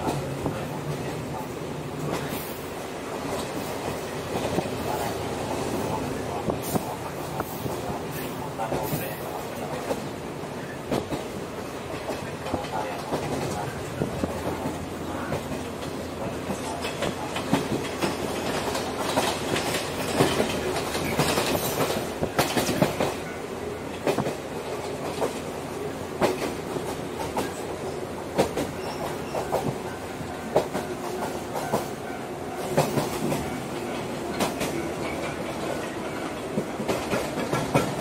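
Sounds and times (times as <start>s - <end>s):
train rumble: 0.0s - 38.0s
wheels clacking over rail joints: 10.9s - 23.3s, 28.3s - 38.0s.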